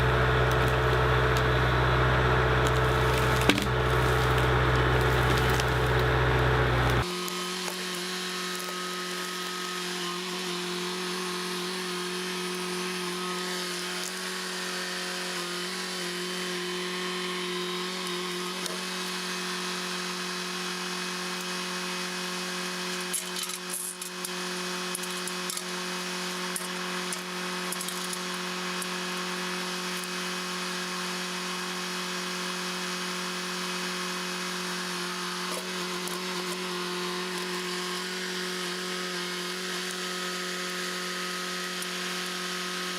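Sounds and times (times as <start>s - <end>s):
machine engine humming: 0.0s - 14.4s.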